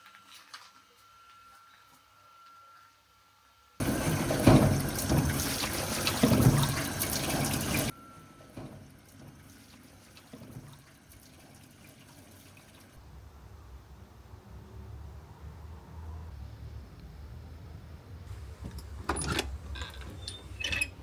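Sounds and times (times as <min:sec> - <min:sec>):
loud running water: 0:03.8 - 0:07.9.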